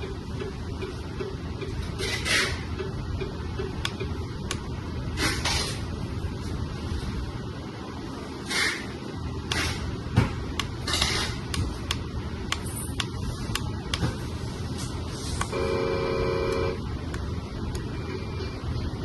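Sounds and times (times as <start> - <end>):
truck horn blast: 15.5 - 16.8.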